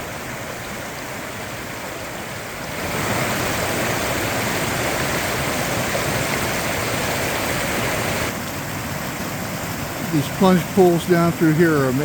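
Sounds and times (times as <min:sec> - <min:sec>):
brook rushing: 0:02.7 - 0:12.0.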